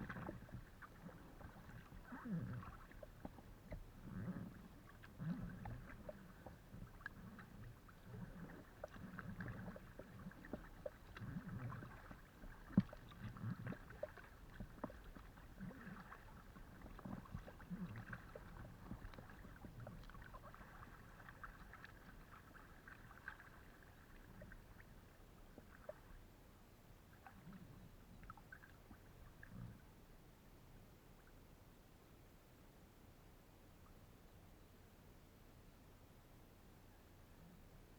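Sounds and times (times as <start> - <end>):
paddle splashes: 0.0 - 26.3, 27.1 - 29.6
water against kayak hull: 0.0 - 30.0.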